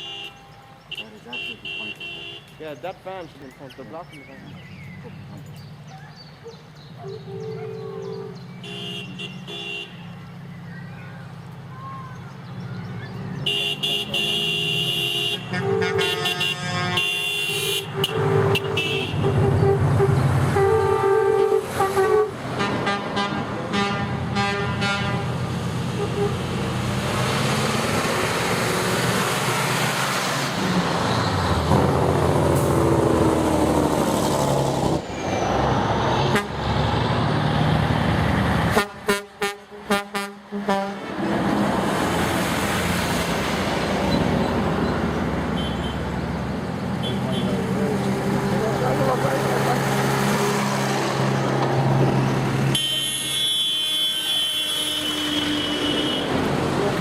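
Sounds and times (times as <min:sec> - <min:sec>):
vehicle horns honking: 0:00.0 - 0:02.7, 0:07.0 - 0:10.2, 0:13.4 - 0:26.5, 0:36.2 - 0:36.6, 0:38.7 - 0:41.1, 0:45.5 - 0:46.1, 0:47.0 - 0:47.7, 0:52.7 - 0:56.5
passing trucks engines and tyres: 0:00.0 - 0:57.0.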